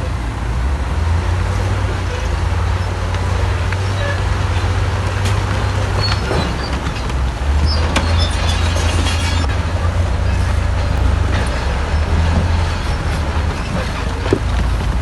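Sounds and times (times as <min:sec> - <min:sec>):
diesel machinery rumbling: 0:00.0 - 0:15.0
short squeaks: 0:03.8 - 0:09.5
metal clanks: 0:03.9 - 0:15.0.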